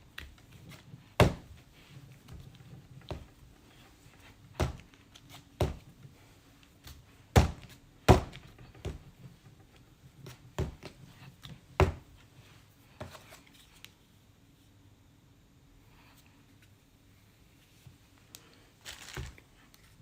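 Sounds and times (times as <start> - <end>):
clay thudding onto board: 7.3 - 9.0.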